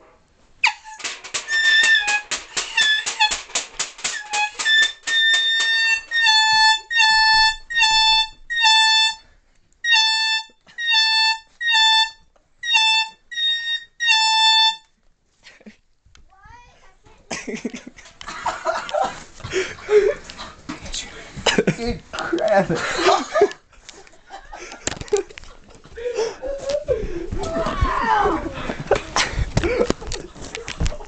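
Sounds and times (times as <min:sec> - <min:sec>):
metal pie pans clanging: 0:00.9 - 0:05.5.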